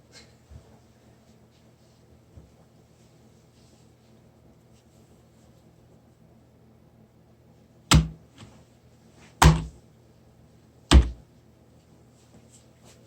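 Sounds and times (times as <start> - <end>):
faint room noise: 0.0 - 13.0
loud thuds with low ring: 7.9 - 8.2, 9.4 - 9.8, 10.9 - 11.2.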